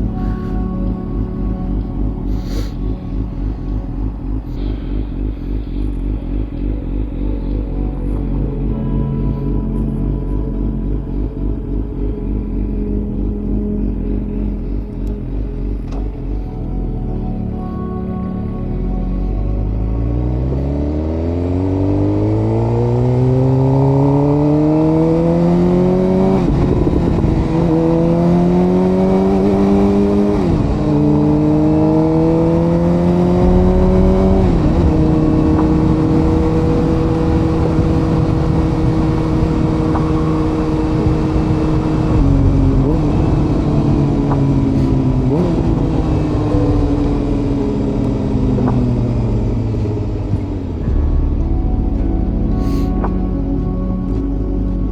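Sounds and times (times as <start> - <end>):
motorcycle engine revving through gears: 0.0 - 54.9
wind and road noise: 0.0 - 54.9.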